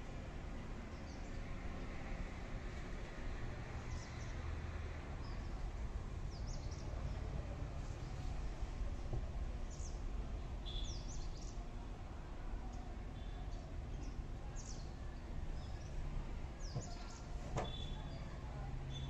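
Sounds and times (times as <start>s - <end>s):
small birds chirping: 13.2s - 15.0s.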